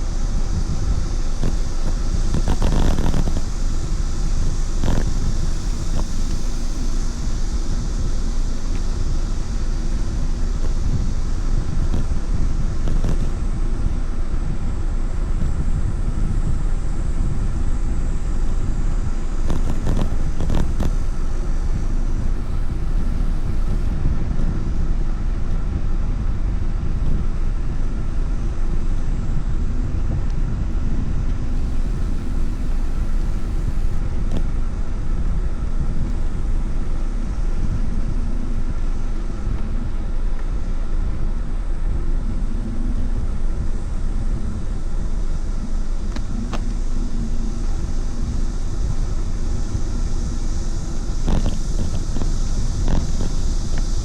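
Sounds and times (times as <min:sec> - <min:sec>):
road noise: 0:00.0 - 0:42.4
wind rushing on microphone: 0:00.0 - 0:54.0.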